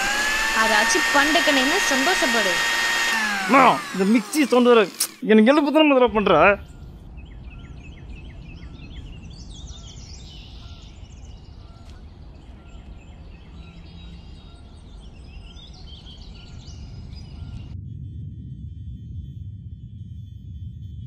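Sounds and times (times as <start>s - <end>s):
birds chirping and twittering: 3.6s - 17.8s
steady low rumble: 6.1s - 21.0s.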